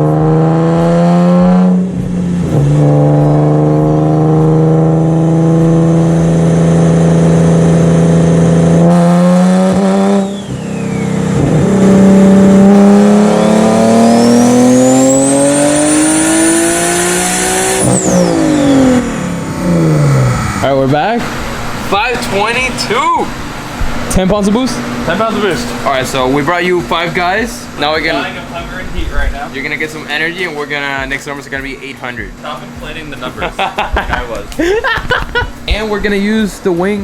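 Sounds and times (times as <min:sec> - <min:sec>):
car engine accelerating: 0:00.0 - 0:37.0
turbo whistle: 0:10.1 - 0:11.8, 0:17.6 - 0:19.0.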